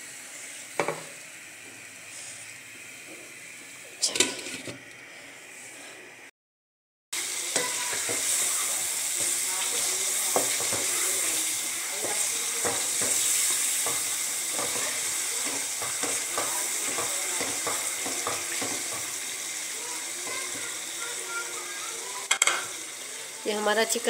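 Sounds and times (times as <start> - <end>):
curry sizzling in a pan: 0.0 - 5.7, 7.2 - 24.0
spoon scraping a metal pan: 4.0 - 4.8.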